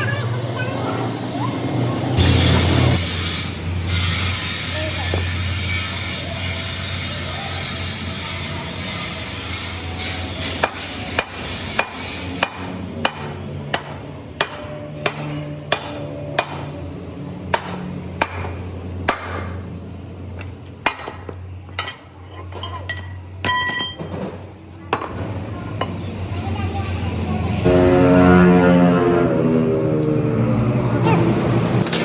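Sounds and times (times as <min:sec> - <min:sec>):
hammer striking metal: 0:08.2 - 0:16.7.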